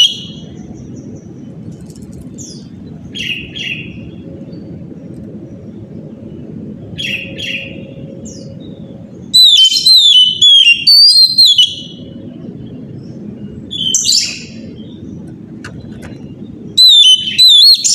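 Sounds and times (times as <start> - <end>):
bird singing whistles: 9.3 - 12.0, 16.8 - 17.9.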